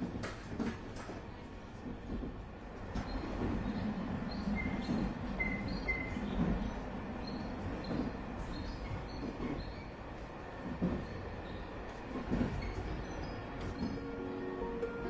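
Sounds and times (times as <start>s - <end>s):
rail vehicle rumbling on track: 0.0s - 15.0s
high squeaks: 3.0s - 10.0s, 12.3s - 14.1s.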